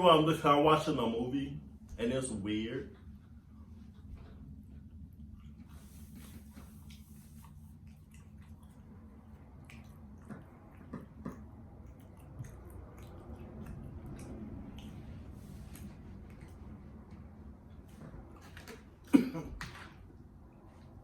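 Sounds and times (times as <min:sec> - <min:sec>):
low steady hum: 0:00.0 - 0:21.0
person chewing food: 0:04.8 - 0:19.8.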